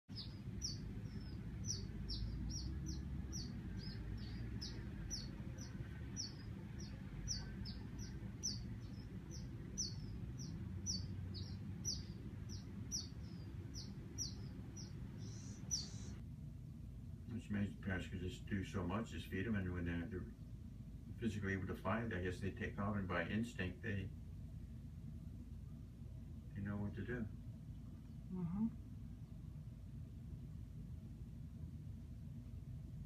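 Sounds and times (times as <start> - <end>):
small bird chirping: 0.0 - 16.2
steady low rumble: 0.1 - 33.0.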